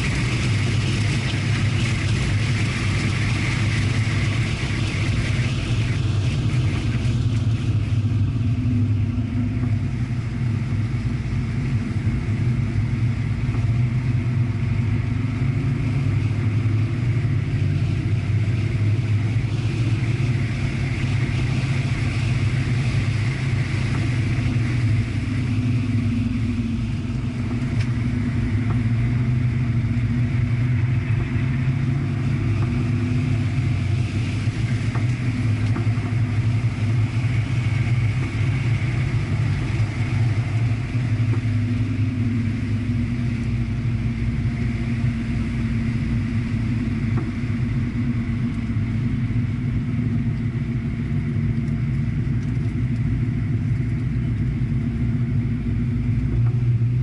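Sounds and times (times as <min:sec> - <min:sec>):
car engine drone from inside: 0:00.0 - 0:57.0
road and wind noise: 0:00.0 - 0:57.0.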